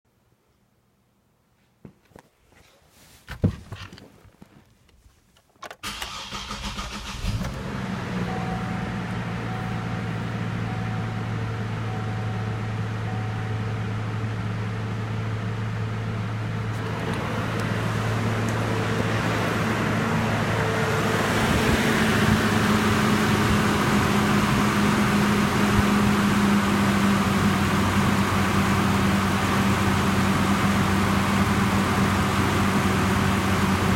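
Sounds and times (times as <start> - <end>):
starter motor cranking: 5.8 - 7.6
car engine idling: 5.8 - 33.9.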